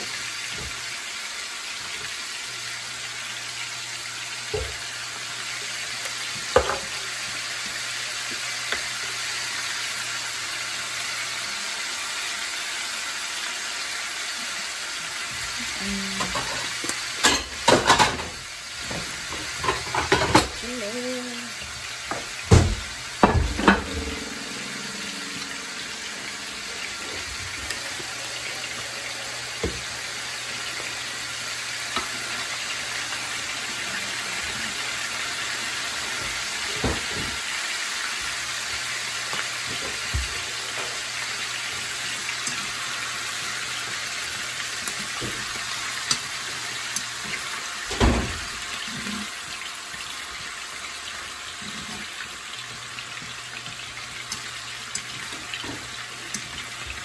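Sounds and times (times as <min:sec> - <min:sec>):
oil sizzling in a skillet: 0:00.0 - 0:57.0
utensils knocking against pans: 0:16.2 - 0:20.6, 0:22.1 - 0:27.8.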